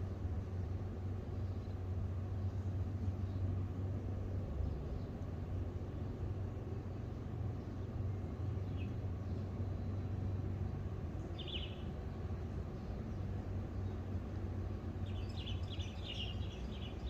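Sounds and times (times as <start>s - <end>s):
small bird chirping: 11.2s - 11.9s, 15.0s - 17.0s.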